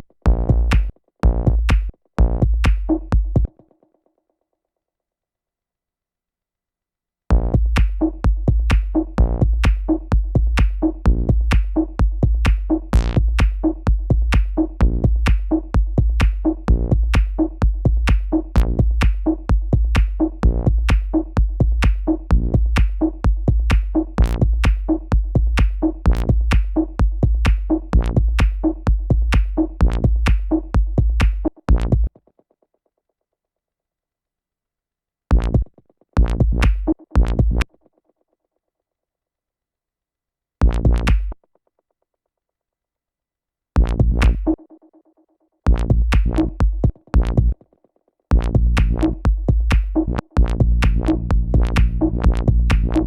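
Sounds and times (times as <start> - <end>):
deep synth bass: 0.3 - 3.5, 7.3 - 32.1, 35.3 - 37.6, 40.6 - 41.3, 43.8 - 44.6, 45.7 - 47.6, 48.3 - 53.0
techno drum machine loop: 0.3 - 3.5, 7.3 - 32.1, 36.2 - 37.6, 43.8 - 44.6, 45.7 - 47.6, 48.3 - 53.0.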